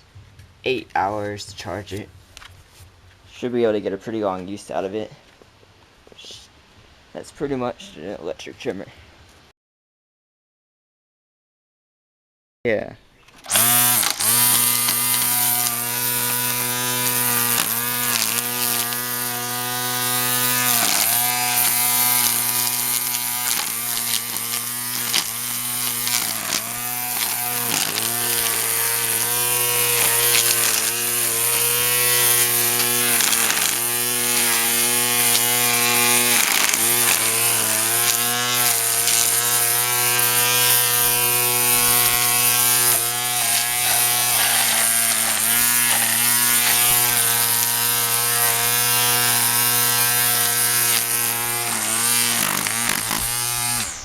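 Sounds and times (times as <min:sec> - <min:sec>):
electric lawn mower cutting grass: 0:13.4 - 0:54.0.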